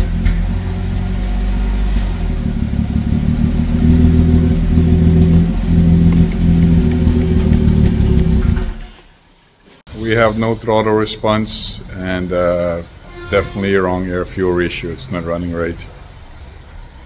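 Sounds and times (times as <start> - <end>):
car engine running rough: 0.0 - 8.9.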